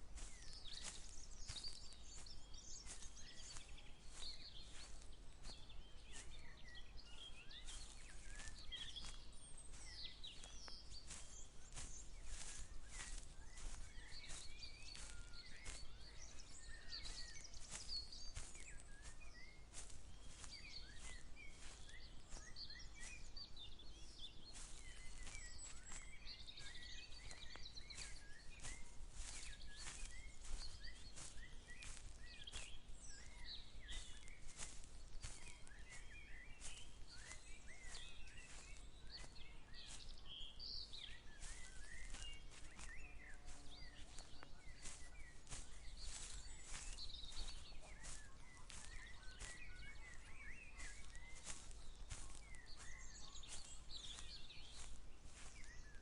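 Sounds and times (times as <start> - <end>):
songbirds chirping and trilling: 0.0 - 56.0
footsteps brushing through plants: 0.1 - 56.0.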